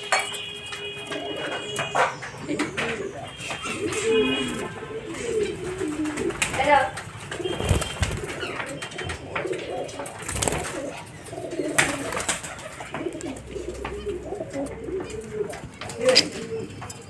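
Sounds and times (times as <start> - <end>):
low wavering cooing: 2.4 - 6.4, 8.2 - 17.0.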